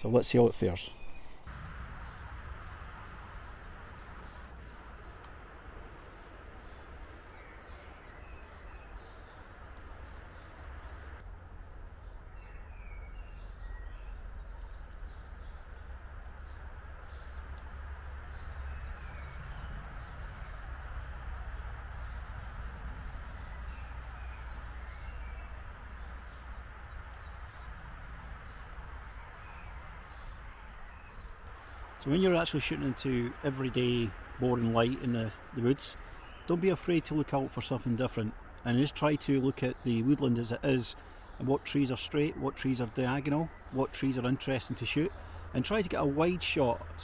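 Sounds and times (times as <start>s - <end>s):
songbirds chirping: 0.0s - 47.0s
outdoor hiss: 0.8s - 11.2s
low rumble: 1.5s - 32.0s.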